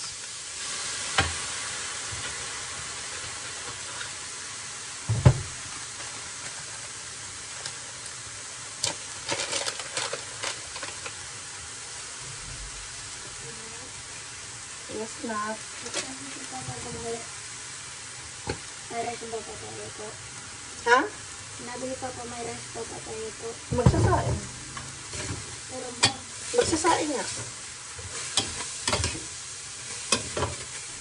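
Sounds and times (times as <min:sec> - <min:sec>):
chicken sizzling in skillet: 0:00.0 - 0:31.0
sachet tearing crinkly clicks: 0:08.8 - 0:11.2.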